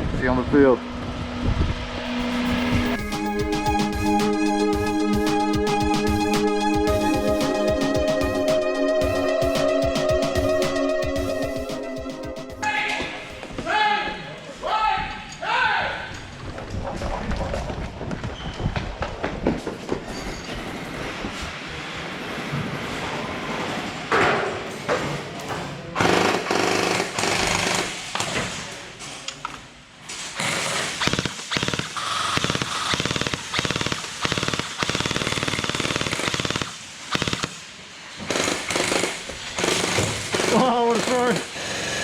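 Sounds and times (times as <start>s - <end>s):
gel blasters firing full-auto: 30.4s - 37.6s.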